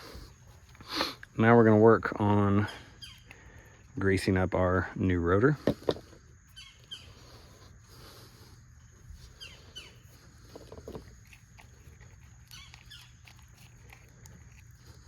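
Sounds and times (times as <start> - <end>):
grease squelching by hand: 8.9 - 15.0
small squeaks and light clicks: 9.3 - 15.0.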